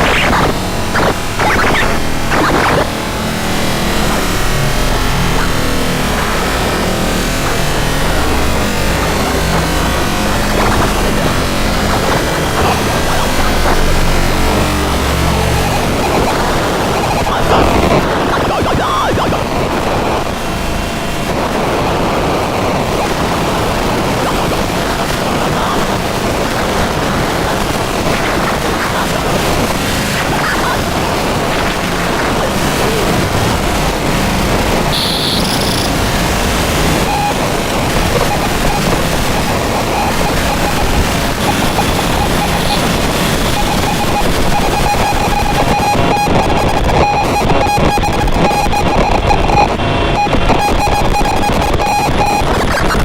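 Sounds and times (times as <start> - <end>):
pulsing high tone: 0.0 - 20.9, 34.9 - 36.1, 38.3 - 47.2
synthesizer noise wall: 0.0 - 53.0.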